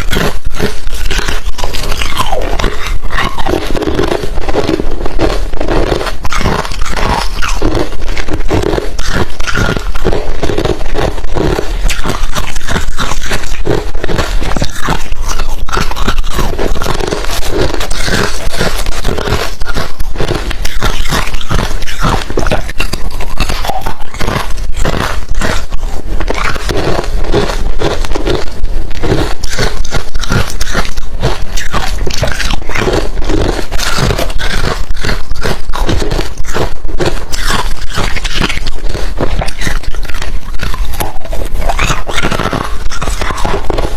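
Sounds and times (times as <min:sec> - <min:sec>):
person chewing crunchy ice: 0:00.0 - 0:43.9.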